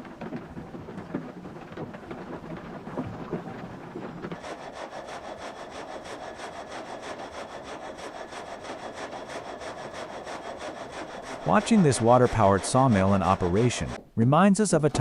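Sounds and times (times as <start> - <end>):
saw blade cutting timber: 4.3 - 14.0.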